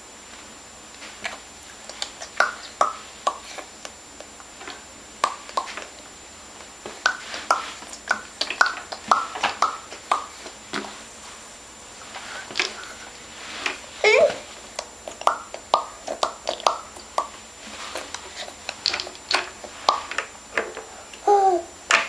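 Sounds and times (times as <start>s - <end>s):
baby making popping noises: 15.0s - 17.3s.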